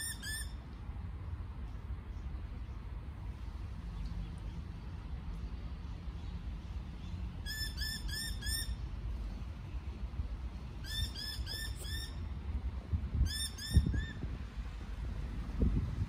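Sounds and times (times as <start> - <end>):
bird calling: 0.0 - 0.6, 7.0 - 8.8, 10.8 - 12.3
traffic rumble: 0.0 - 16.0
wind: 0.0 - 16.0.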